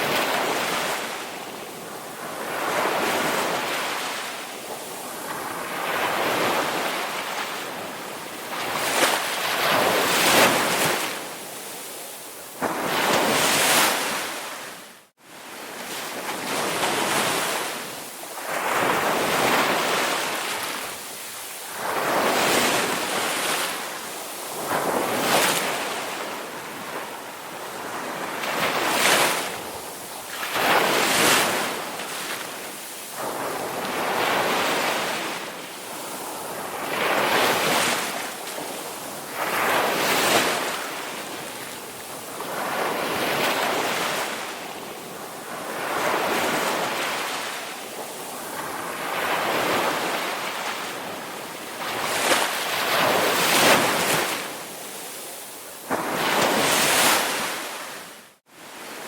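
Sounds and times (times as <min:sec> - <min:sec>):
ocean waves breaking: 0:15.6 - 0:59.0.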